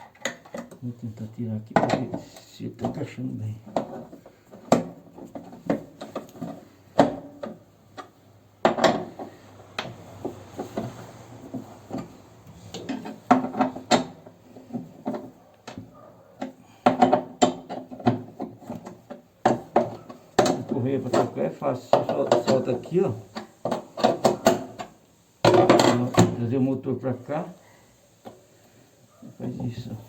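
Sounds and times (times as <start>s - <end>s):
knocks and clatter of machine parts: 1.6s - 9.4s, 10.2s - 22.8s, 23.6s - 26.4s.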